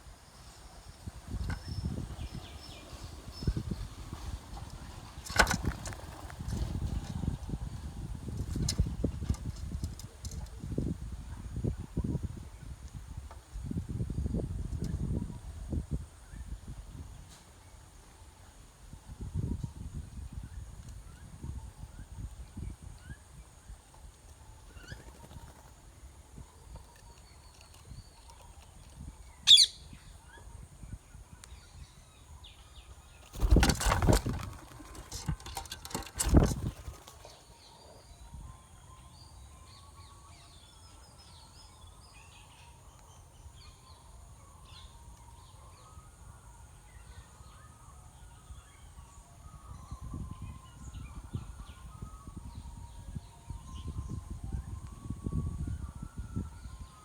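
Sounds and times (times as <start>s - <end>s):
parakeet chicks chirping: 29.4s - 30.3s.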